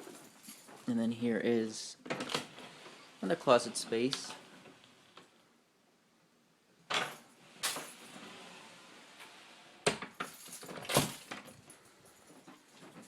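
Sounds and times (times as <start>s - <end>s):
metallic clinks and rattles: 0.0s - 1.0s, 10.1s - 13.0s.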